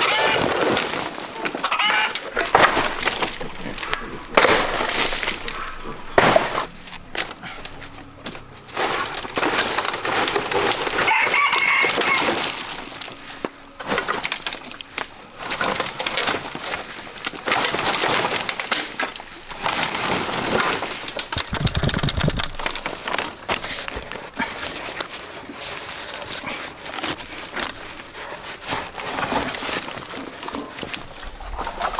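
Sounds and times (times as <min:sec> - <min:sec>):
rooster crowing: 0:00.0 - 0:00.6, 0:01.6 - 0:02.4, 0:10.9 - 0:12.8
chickens: 0:00.0 - 0:08.0, 0:09.0 - 0:14.2
rustling and snapping: 0:00.0 - 0:31.9.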